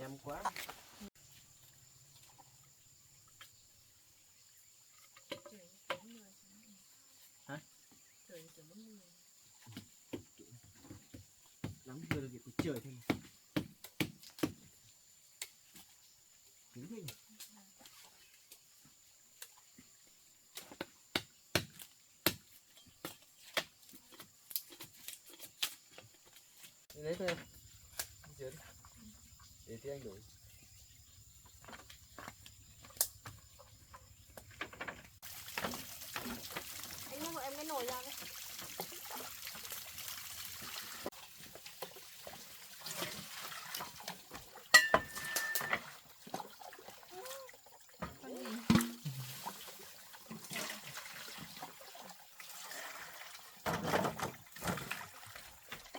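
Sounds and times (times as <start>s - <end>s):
knife chopping roots: 11.6s - 14.6s, 20.6s - 23.7s
water trickling and splashing: 15.6s - 20.6s, 22.9s - 55.9s
metal pot knocked and ringing: 44.7s - 45.8s.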